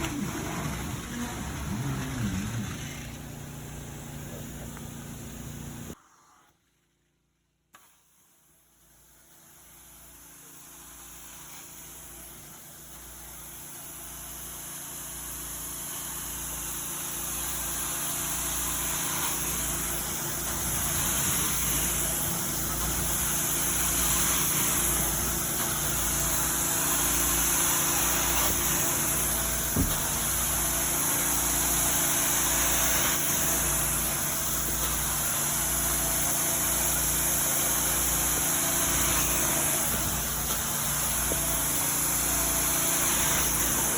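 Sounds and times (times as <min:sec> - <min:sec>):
carpet cleaning machine motor whining: 0:00.0 - 0:06.0, 0:15.8 - 0:43.9
knock: 0:29.8 - 0:30.1.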